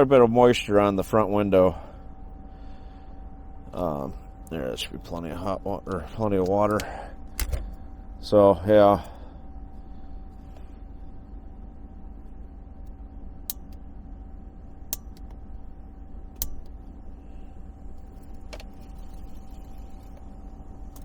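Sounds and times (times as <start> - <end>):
sharp clicks: 12.8 - 13.9, 14.9 - 15.4, 16.4 - 16.8.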